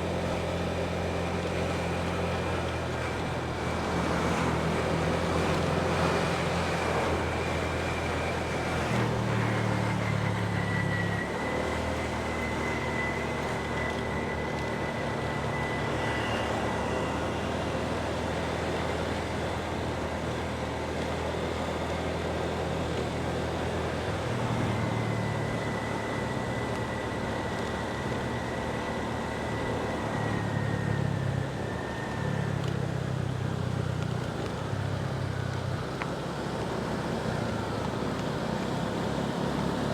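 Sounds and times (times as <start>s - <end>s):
faint high whine: 0.0s - 32.8s
wind and road noise: 0.0s - 39.9s.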